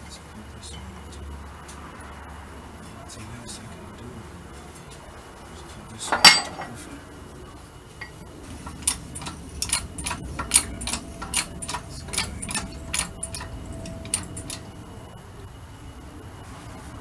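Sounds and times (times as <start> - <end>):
hammer tapping metal: 6.1 - 6.7, 8.0 - 14.8.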